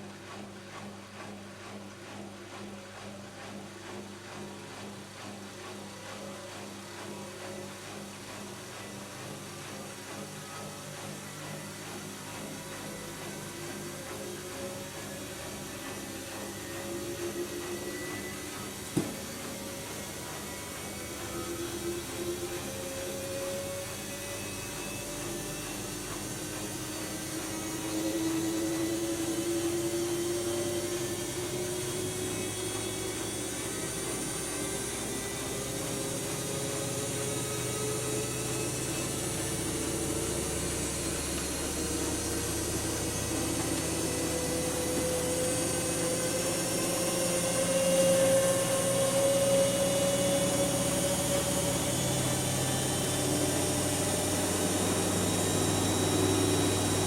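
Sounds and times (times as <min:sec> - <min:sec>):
washing machine motor whine: 0:00.0 - 0:57.0.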